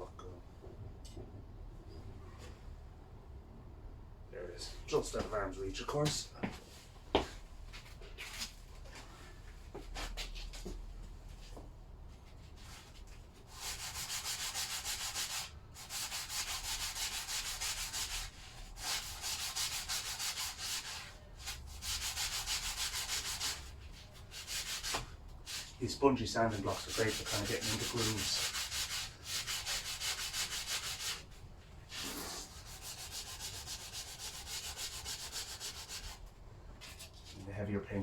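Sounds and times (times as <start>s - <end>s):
sanding block rubbing on metal: 13.5s - 23.7s, 24.3s - 25.7s, 26.5s - 31.3s, 31.9s - 36.2s.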